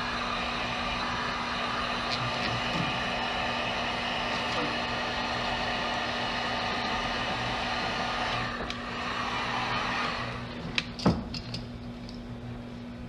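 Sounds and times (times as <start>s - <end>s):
heat gun blowing: 0.0s - 10.9s.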